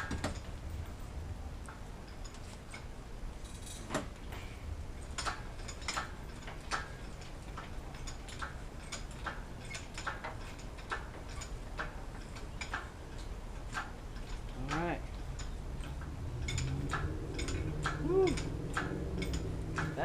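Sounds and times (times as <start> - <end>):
sharp metallic clicks and knocks: 0.0 - 1.0, 1.6 - 20.0
low steady hum: 0.0 - 20.0.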